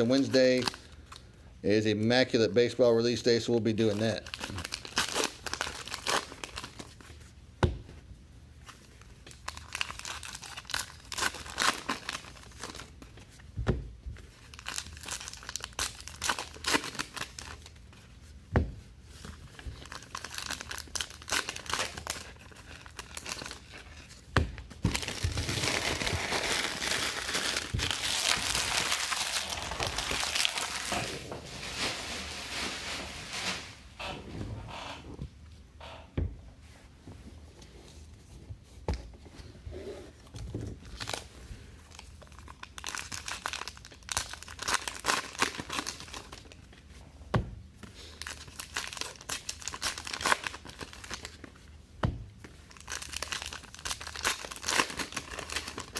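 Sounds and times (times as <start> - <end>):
card wrappers crinkling and tearing: 0.0 - 1.3, 3.7 - 7.1, 8.8 - 13.1, 14.4 - 17.9, 19.1 - 33.5, 40.8 - 46.6, 47.9 - 51.5, 52.5 - 55.9.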